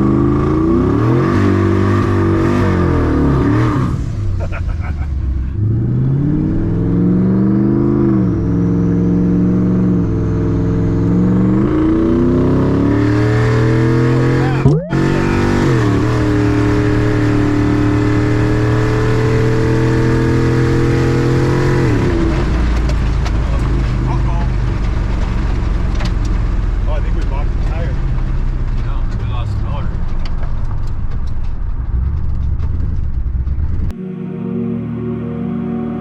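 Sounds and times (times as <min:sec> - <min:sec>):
engine revving under load: 0:00.0 - 0:04.4, 0:05.4 - 0:22.8.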